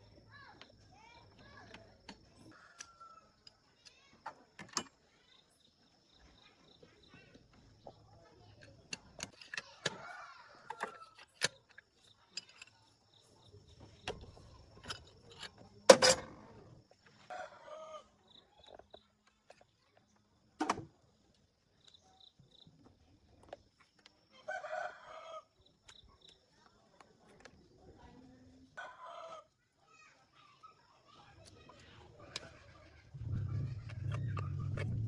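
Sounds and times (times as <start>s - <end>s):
rooster crowing: 17.3s - 18.1s, 24.5s - 25.5s.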